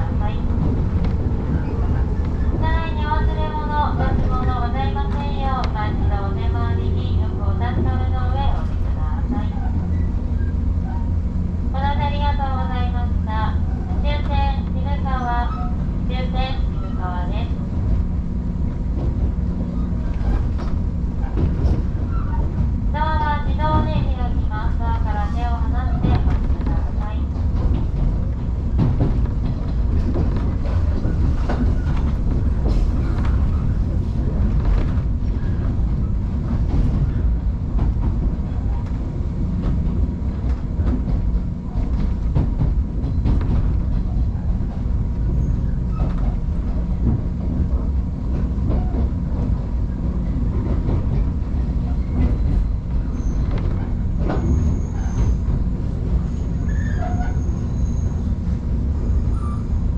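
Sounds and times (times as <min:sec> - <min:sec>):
train interior rumble: 0:00.0 - 0:59.9
high-pitched wheel squeals: 0:52.0 - 0:55.4, 0:56.3 - 0:58.3, 0:59.1 - 0:59.8.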